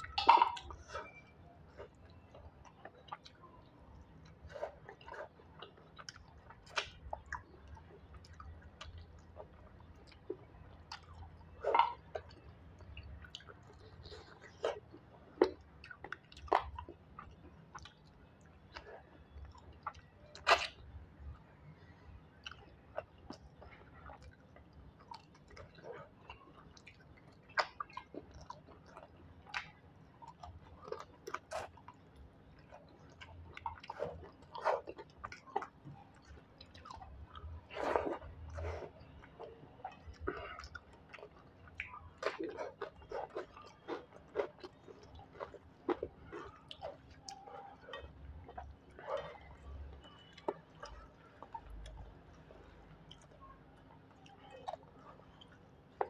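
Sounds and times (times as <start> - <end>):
open-mouthed chewing: 0.0 - 56.0.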